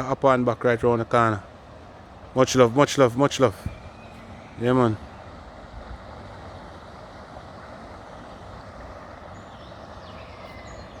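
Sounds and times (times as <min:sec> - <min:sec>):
outdoor background noise: 0:00.0 - 0:11.0
faint bird chirps: 0:03.5 - 0:05.4, 0:09.3 - 0:11.0.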